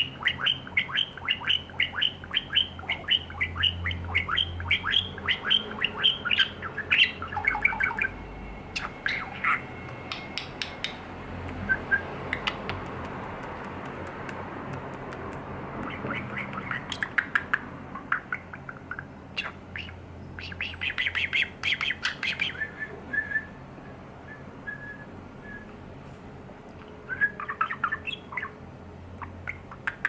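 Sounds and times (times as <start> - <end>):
budgerigar squawks: 0.0 - 8.1, 8.8 - 9.7, 27.2 - 28.6
budgerigar chirping: 0.0 - 10.7, 15.8 - 23.5, 27.1 - 28.6, 29.2 - 30.0
bird clicks: 9.9 - 11.6, 12.3 - 17.7.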